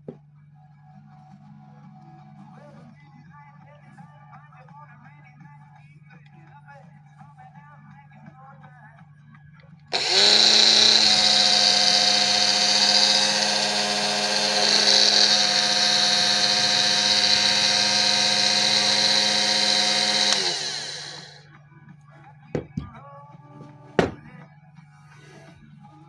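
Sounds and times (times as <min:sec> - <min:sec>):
power tool gear whine: 0:09.9 - 0:21.4
power tool spinning down: 0:09.9 - 0:21.4.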